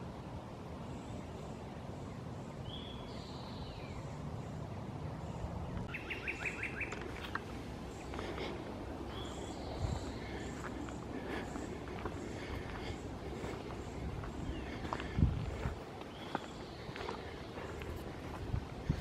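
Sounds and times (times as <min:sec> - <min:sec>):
steady low rumble: 0:00.0 - 0:19.0
woodland birds singing: 0:00.0 - 0:19.0
footsteps on a dirt trail: 0:05.8 - 0:19.0.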